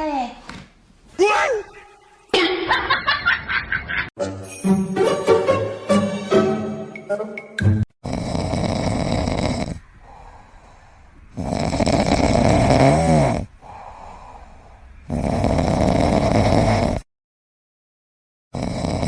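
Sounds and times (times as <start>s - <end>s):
loud snores: 8.0s - 10.4s, 11.3s - 17.1s, 18.5s - 19.0s
quiet breaths: 8.4s - 12.5s, 13.4s - 16.0s.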